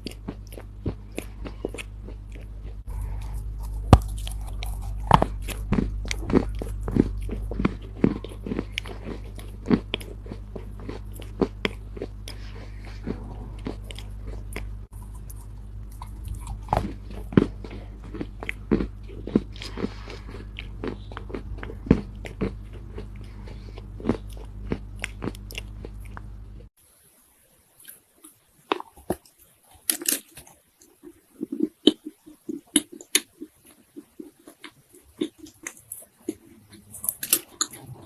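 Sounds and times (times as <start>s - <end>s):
clay earth crunching as chewed: 0.0s - 26.7s, 28.2s - 38.0s
low hum: 0.0s - 26.7s.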